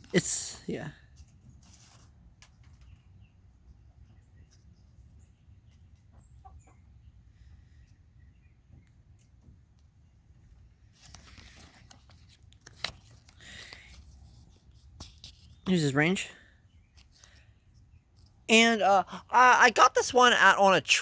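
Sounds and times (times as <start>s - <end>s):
rustling: 1.0s - 3.2s, 10.8s - 15.7s.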